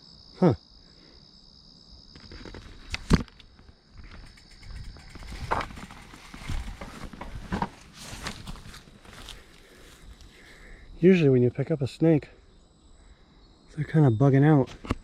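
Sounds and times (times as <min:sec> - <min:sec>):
crickets trilling: 0:00.0 - 0:15.0
scuffs and rustles of handling: 0:05.2 - 0:10.4.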